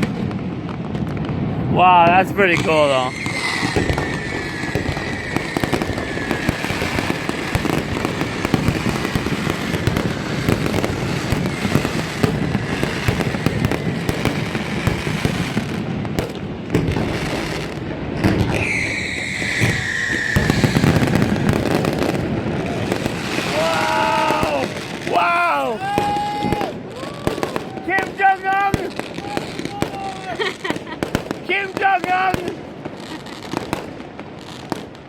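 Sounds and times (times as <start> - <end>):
fireworks crackling and bangs: 0.0 - 35.0
firework whistle falling in pitch: 2.7 - 7.8, 18.2 - 21.5.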